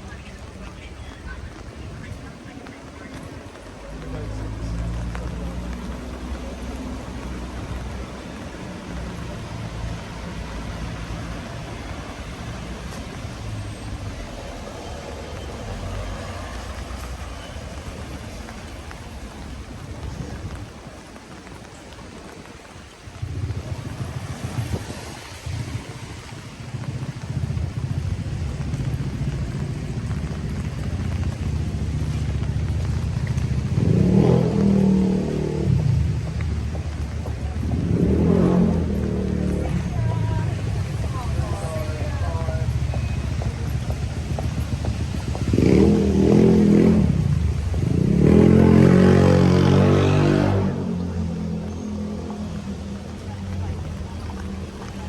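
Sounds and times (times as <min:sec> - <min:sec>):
rain on a wet street: 0:00.0 - 0:55.0
road traffic rumble: 0:00.0 - 0:55.0
vehicle engine running: 0:23.1 - 0:55.0.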